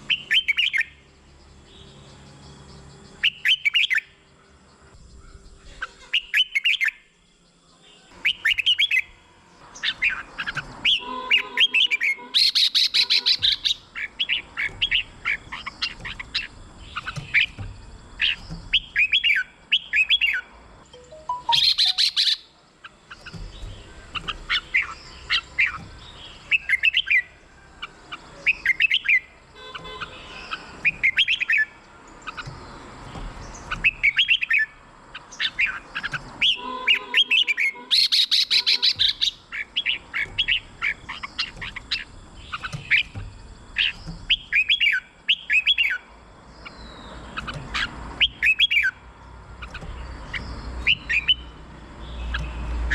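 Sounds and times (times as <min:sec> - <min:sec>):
bird chattering: 0:09.7 - 0:27.3, 0:28.2 - 0:52.9
bird singing whistled phrases: 0:21.0 - 0:22.5, 0:36.4 - 0:41.8, 0:43.8 - 0:46.0, 0:48.2 - 0:49.0.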